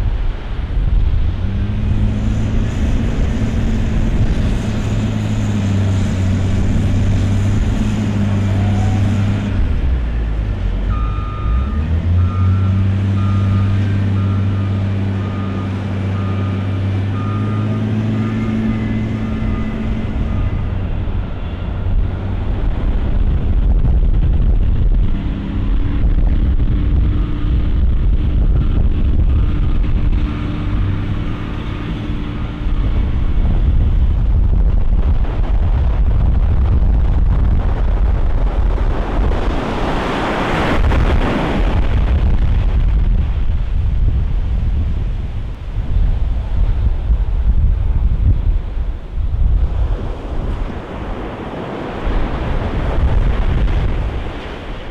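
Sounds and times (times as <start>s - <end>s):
heavy vehicle engine running: 0.0s - 54.9s
second engine: 0.4s - 37.7s
reversing alarm beeping: 10.9s - 22.0s.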